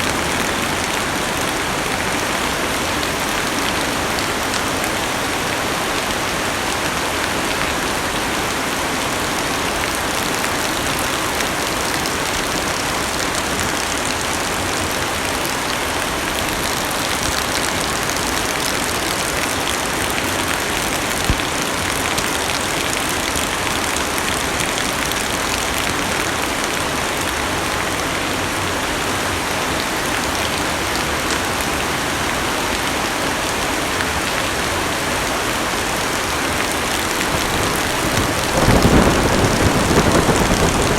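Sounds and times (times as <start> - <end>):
heavy rain on car roof: 0.0 - 28.8, 36.0 - 40.9
sharp raindrop strike: 37.2 - 40.9.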